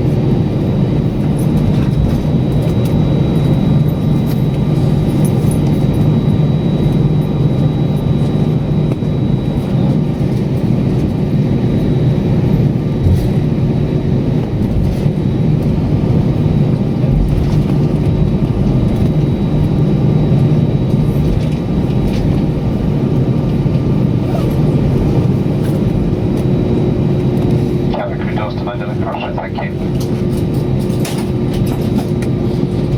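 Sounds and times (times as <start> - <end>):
vehicle rumbling in motion: 14.2 - 26.8.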